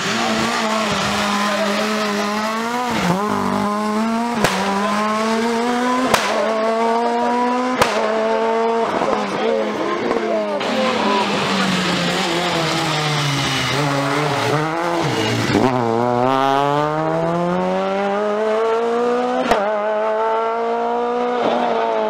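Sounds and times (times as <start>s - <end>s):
rally car engine: 0.0s - 22.0s
sharp crack: 4.4s - 4.8s, 6.0s - 6.5s, 7.8s - 8.2s.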